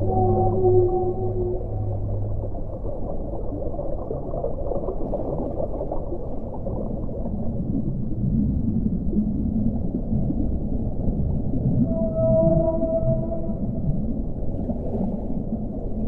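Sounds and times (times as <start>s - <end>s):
held low tones: 0.0s - 3.7s, 11.6s - 14.2s
underwater rumbling and bubbling: 0.0s - 16.0s.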